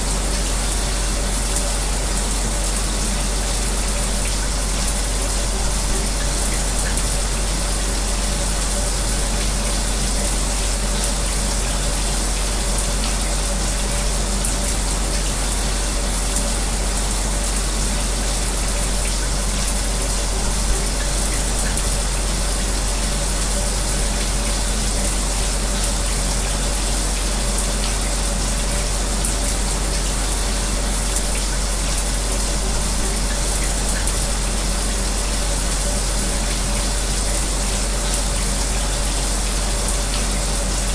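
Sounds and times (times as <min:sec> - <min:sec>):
electric fan humming: 0:00.0 - 0:40.9
shower water running: 0:00.0 - 0:40.9.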